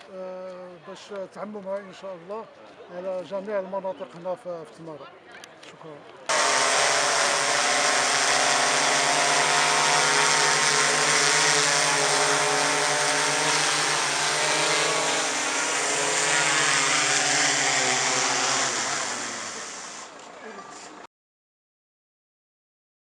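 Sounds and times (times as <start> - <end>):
drone propellers buzzing: 6.3 - 20.2
high hiss: 6.3 - 20.2.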